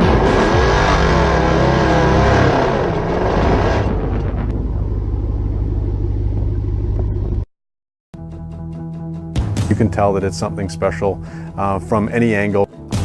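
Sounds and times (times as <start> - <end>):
pickup truck engine rumbling: 0.0 - 7.5.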